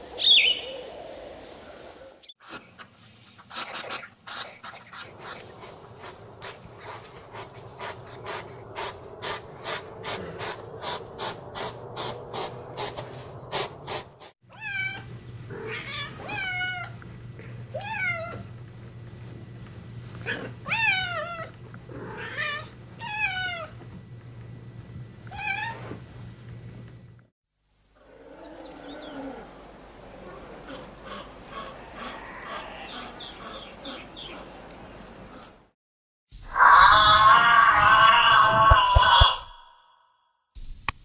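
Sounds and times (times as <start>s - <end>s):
hedgehog snuffling and clicking: 3.4s - 14.1s.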